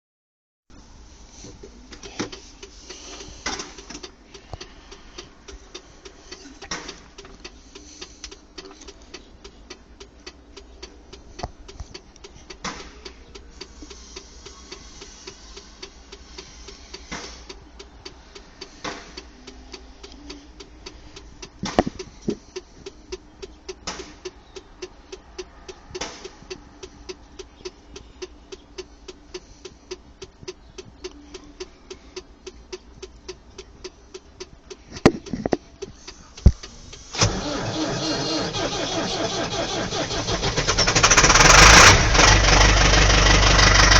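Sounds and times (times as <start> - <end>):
tractor diesel engine clattering: 34.6 - 43.9.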